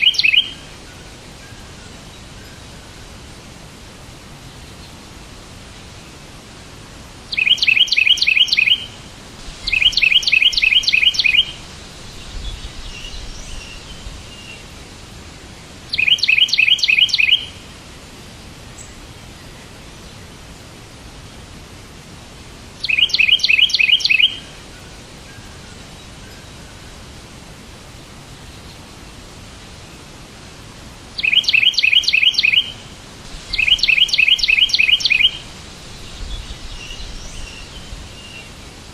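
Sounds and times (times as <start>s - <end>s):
soft bird chirping: 0.0s - 2.7s, 7.3s - 9.0s, 9.6s - 14.8s, 15.7s - 17.6s, 22.8s - 26.8s, 31.2s - 32.9s, 33.5s - 38.6s
songbird singing: 0.0s - 21.6s, 22.4s - 38.9s
steady background hiss: 0.0s - 38.9s.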